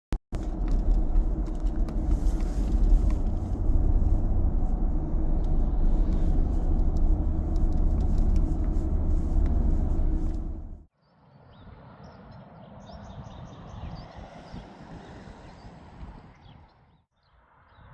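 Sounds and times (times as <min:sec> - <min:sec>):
car road rumble: 0:00.3 - 0:10.9.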